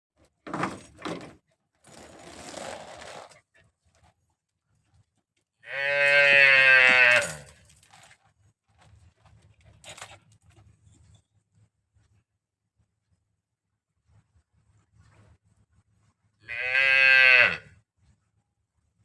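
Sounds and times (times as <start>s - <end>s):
cow mooing: 5.6s - 7.5s, 16.5s - 17.7s.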